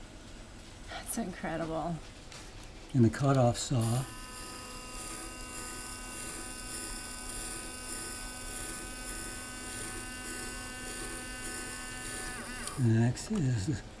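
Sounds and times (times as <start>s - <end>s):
electric gear motors whining: 3.6s - 13.7s.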